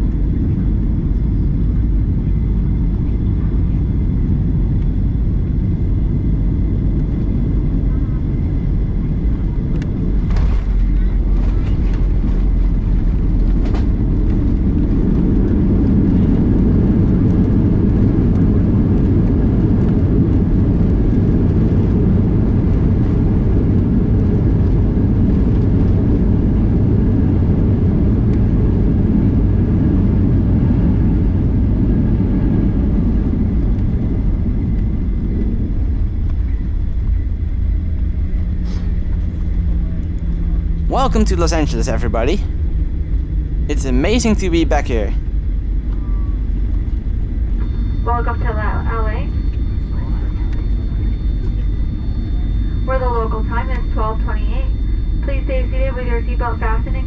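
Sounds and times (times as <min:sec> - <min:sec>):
deep rumble of engines and runway: 0:00.0 - 0:43.7, 0:44.6 - 0:57.0.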